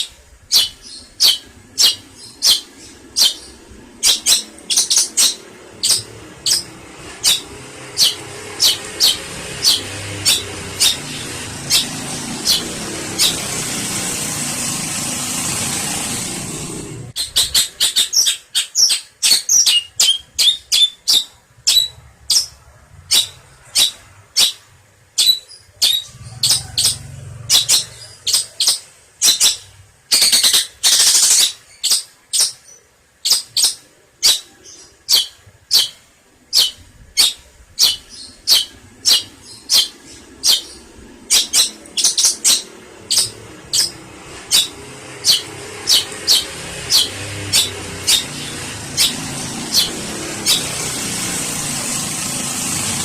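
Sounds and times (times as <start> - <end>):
bird harsh rasping call: 0.0 - 53.0
bird short sharp high calls: 25.2 - 50.7.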